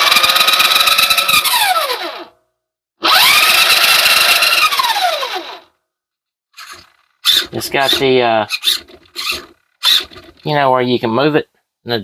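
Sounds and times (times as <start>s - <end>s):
toy truck electric motor whining: 0.0s - 2.4s, 3.0s - 5.7s, 6.6s - 10.5s.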